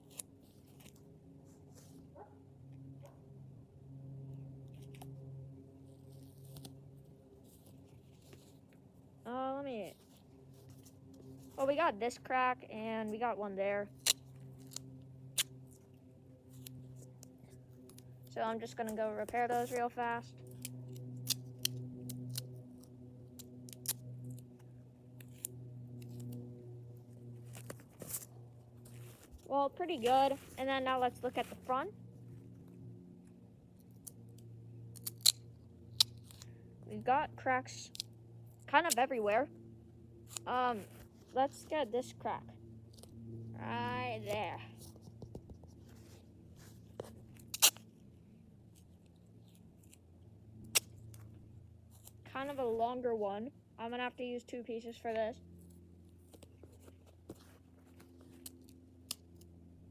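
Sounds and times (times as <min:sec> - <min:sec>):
scissors snipping: 0:00.0 - 0:01.0, 0:13.9 - 0:15.8, 0:16.5 - 0:26.5, 0:33.8 - 0:36.5, 0:37.8 - 0:39.3, 0:40.3 - 0:41.8, 0:47.0 - 0:47.9, 0:50.6 - 0:51.3, 0:56.3 - 0:59.5
tape being handled: 0:00.0 - 0:02.0, 0:04.6 - 0:09.0, 0:09.9 - 0:11.9, 0:13.9 - 0:36.6, 0:40.2 - 0:41.8, 0:43.8 - 0:48.1, 0:48.7 - 0:52.8, 0:55.6 - 0:59.5
steady low hum: 0:00.0 - 0:59.9.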